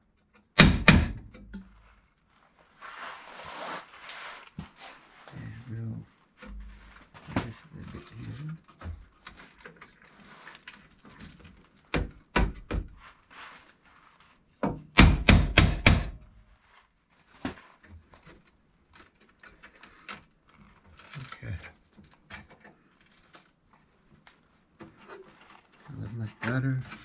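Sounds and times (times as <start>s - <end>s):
knocks on sheet steel: 0.6s - 1.3s, 12.0s - 12.9s, 14.7s - 16.2s.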